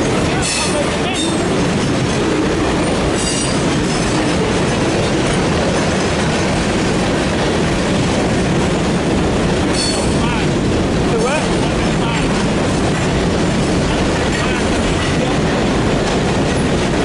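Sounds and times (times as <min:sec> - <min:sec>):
freight train rumbling past: 0:00.0 - 0:17.0
train wheels squealing: 0:09.8 - 0:10.2.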